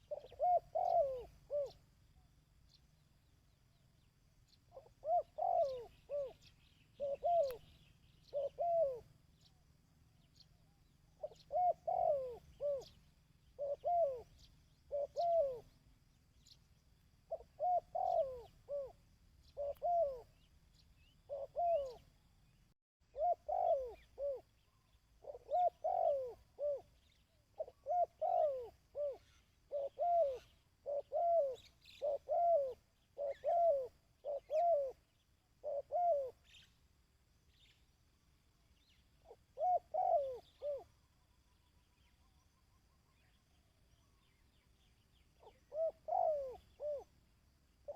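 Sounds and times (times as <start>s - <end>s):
dove cooing: 0.0s - 2.0s, 4.7s - 9.2s, 10.3s - 16.6s, 17.2s - 22.2s, 23.1s - 36.7s, 38.8s - 41.0s, 45.3s - 47.2s.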